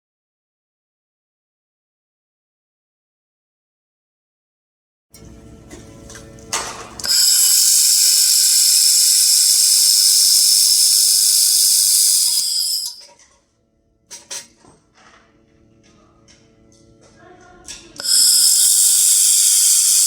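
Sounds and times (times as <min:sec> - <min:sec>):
laser welder hissing: 0:07.0 - 0:13.1, 0:18.0 - 0:20.0.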